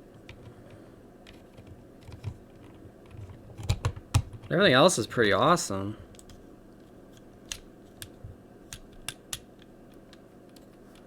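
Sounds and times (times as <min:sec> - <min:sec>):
plastic parts clicking together: 0:01.2 - 0:04.5, 0:07.2 - 0:11.0.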